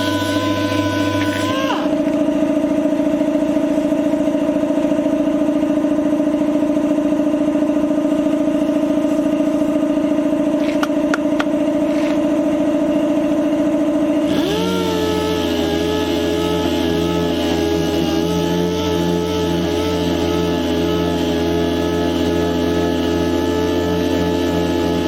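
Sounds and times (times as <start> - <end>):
power sander motor: 0.0 - 2.5, 10.3 - 12.4, 14.1 - 25.0.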